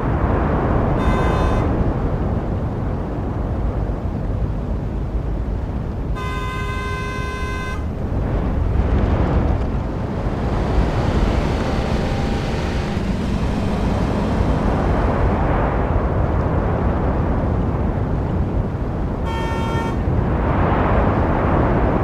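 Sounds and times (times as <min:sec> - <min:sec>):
rumble of passing vehicles: 0:00.0 - 0:22.0
vehicle horn: 0:01.0 - 0:01.8, 0:06.1 - 0:08.8, 0:19.2 - 0:20.1.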